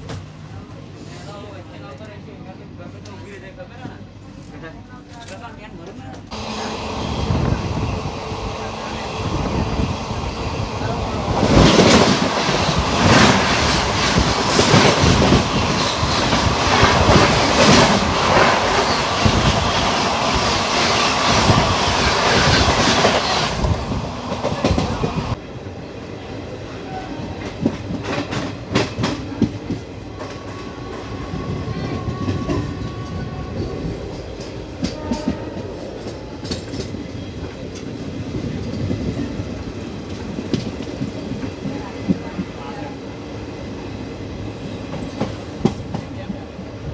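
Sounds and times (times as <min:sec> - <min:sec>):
train wheels clicking: 0:06.1 - 0:25.4, 0:27.4 - 0:42.7, 0:44.4 - 0:46.4
train wheels clattering over joints: 0:06.2 - 0:25.4.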